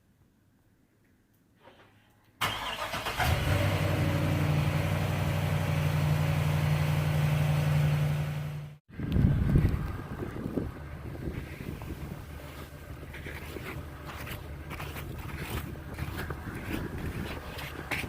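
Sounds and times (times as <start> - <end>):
pickup truck engine cranking: 2.4 - 6.1.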